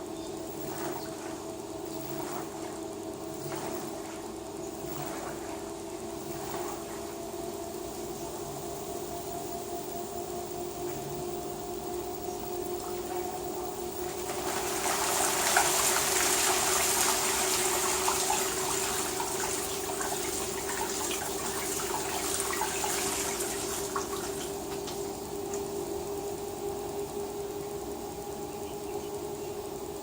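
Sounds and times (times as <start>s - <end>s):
water rushing through washing machine: 0.0s - 7.7s, 12.7s - 28.2s
washing machine hum: 0.0s - 30.0s.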